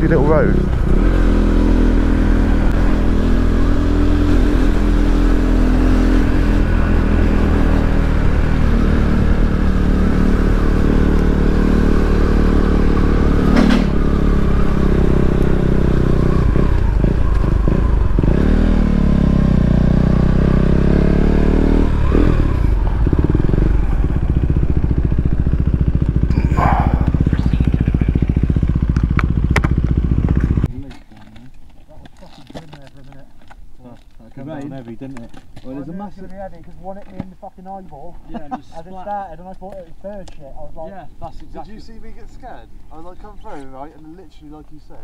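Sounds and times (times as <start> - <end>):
motorcycle engine running: 0.0 - 30.8.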